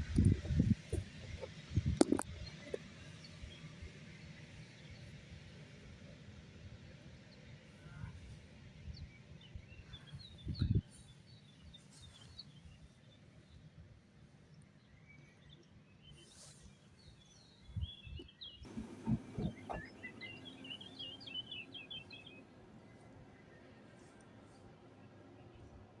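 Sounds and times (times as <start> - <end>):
small birds chirping: 8.9 - 13.6, 14.5 - 26.0
low outdoor rumble: 18.7 - 26.0.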